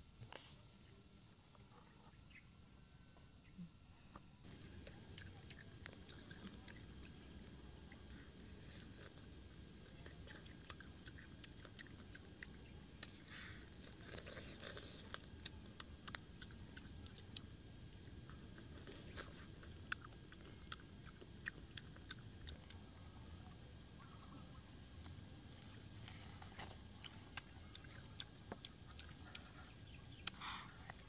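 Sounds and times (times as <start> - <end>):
chewing chicken drumstick: 4.4 - 31.0
mouth clicks and smacks: 26.4 - 31.0.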